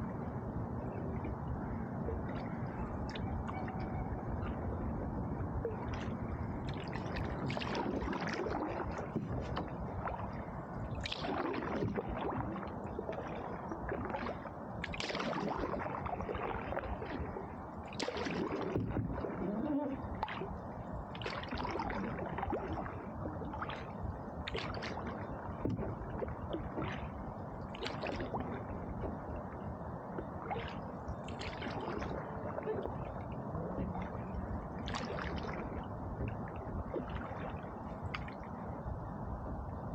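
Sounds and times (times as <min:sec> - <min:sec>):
water gurgling along hull: 0:00.0 - 0:39.9
paddle splashes: 0:05.6 - 0:10.4, 0:11.0 - 0:20.5, 0:21.1 - 0:28.6, 0:30.4 - 0:33.1, 0:34.8 - 0:38.4.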